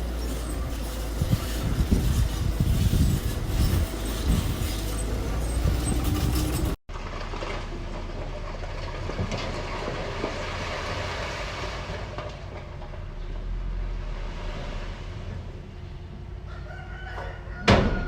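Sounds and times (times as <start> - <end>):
machinery running: 0.0 - 6.8.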